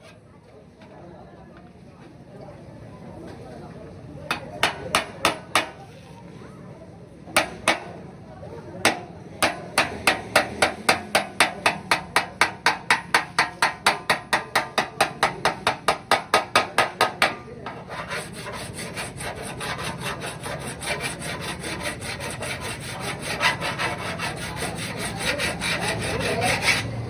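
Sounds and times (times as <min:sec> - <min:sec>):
hammer taps on sheet metal: 0:07.4 - 0:07.9, 0:08.8 - 0:17.8
file rasping over metal panel: 0:08.8 - 0:27.0.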